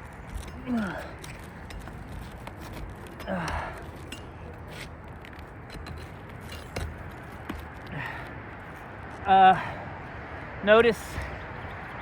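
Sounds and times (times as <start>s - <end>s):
clicks and scrapes of roof shingle: 0.0s - 8.4s.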